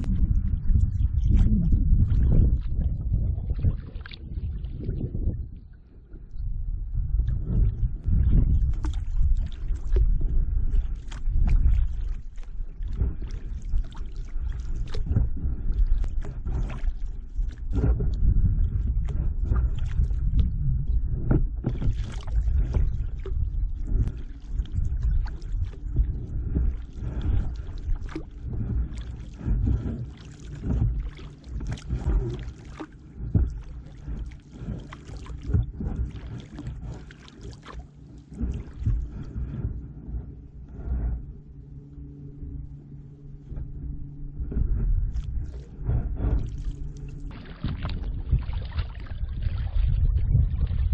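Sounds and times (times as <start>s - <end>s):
wind rumble on microphone: 0.0s - 50.9s
paddle splashing in water: 8.5s - 20.4s, 21.3s - 39.8s, 44.4s - 50.9s.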